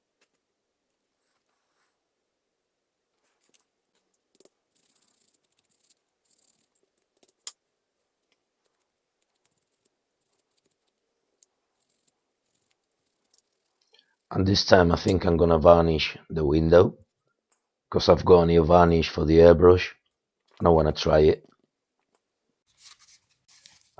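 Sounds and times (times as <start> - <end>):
small metal parts clinking: 3.3 - 7.6, 8.2 - 14.3.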